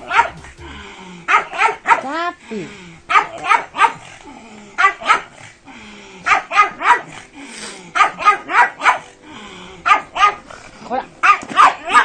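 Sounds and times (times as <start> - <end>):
dog barking: 0.1 - 0.3, 1.3 - 2.2, 3.1 - 4.0, 4.8 - 5.4, 6.2 - 7.2, 8.0 - 9.1, 9.8 - 10.5, 11.2 - 12.0.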